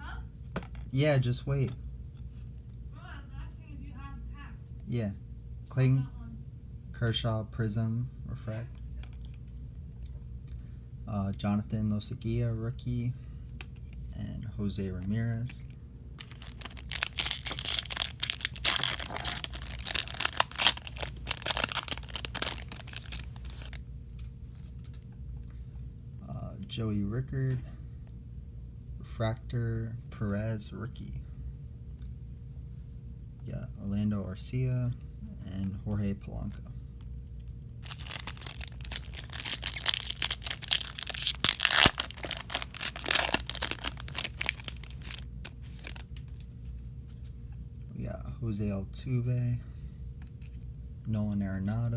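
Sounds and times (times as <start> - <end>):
foil wrapper crinkling and tearing: 16.2 - 23.8, 37.8 - 46.4.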